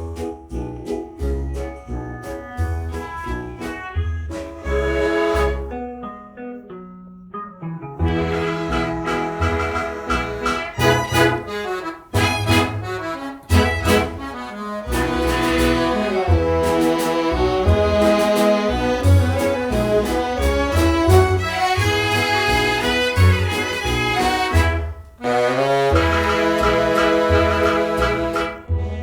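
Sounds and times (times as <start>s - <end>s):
karaoke band backing music: 8.0s - 28.7s.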